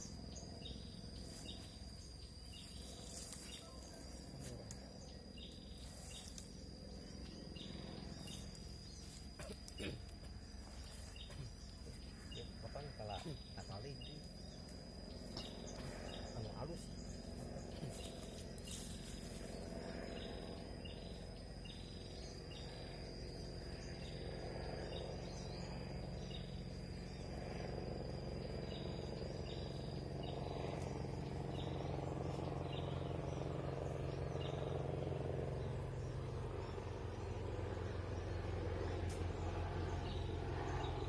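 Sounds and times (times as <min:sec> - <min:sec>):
bird chirping: 0:00.0 - 0:27.4
high insect drone: 0:00.0 - 0:41.0
low engine hum: 0:00.0 - 0:41.0.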